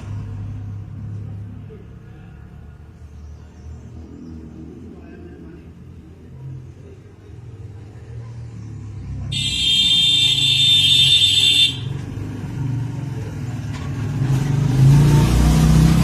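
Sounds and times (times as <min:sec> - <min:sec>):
vehicle engine running: 0:00.0 - 0:14.6
shrill high-pitched tone: 0:09.3 - 0:11.9.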